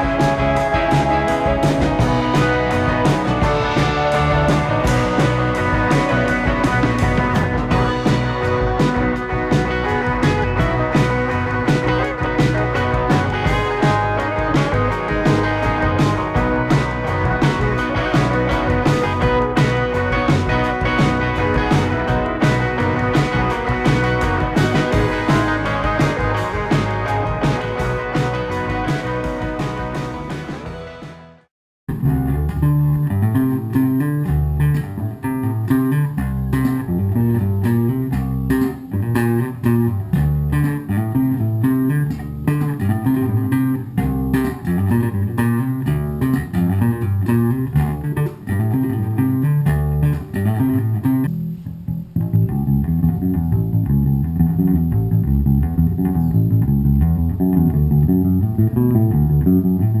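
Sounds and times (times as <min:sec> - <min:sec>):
electric bass guitar riff: 0:00.0 - 1:00.0.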